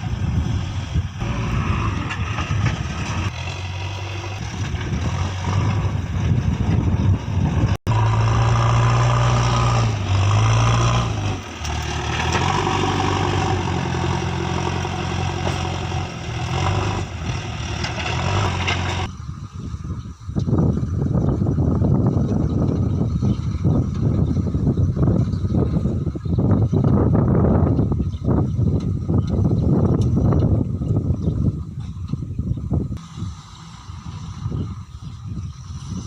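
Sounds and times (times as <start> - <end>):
diesel engine running: 0.0 - 19.2.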